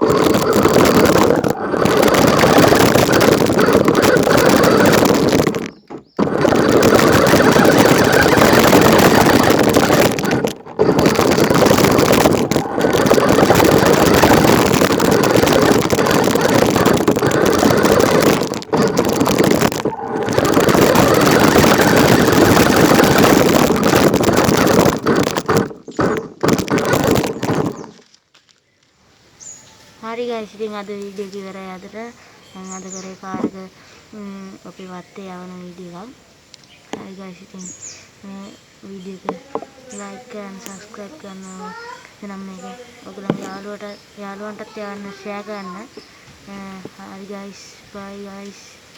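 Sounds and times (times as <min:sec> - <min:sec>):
toy car motor whirring: 0:00.0 - 0:28.0.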